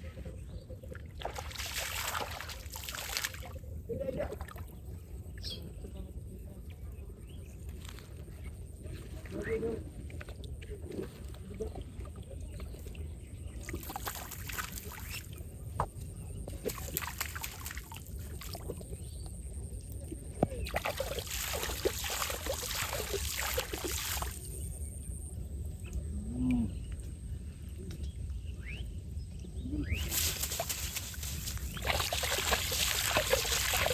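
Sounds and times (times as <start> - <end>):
water splashing and sloshing: 0.1 - 5.2, 9.1 - 24.8, 30.0 - 33.9.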